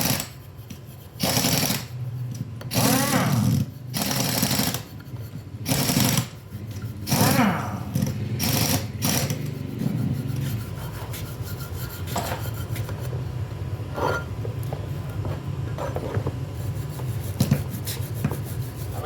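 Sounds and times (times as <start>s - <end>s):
steady low hum: 0.0s - 19.0s
hand scraping on metal: 9.4s - 13.1s.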